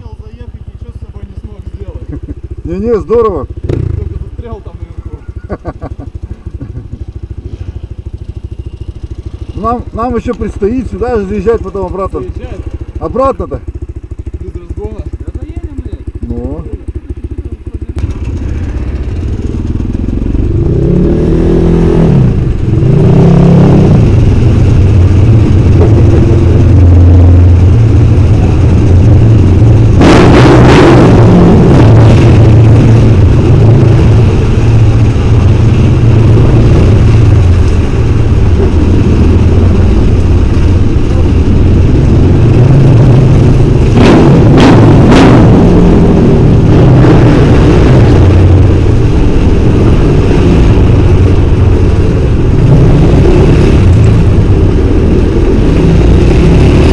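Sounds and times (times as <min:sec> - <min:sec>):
snowmobile engine revving: 0:18.0 - 0:40.2, 0:40.8 - 0:56.9.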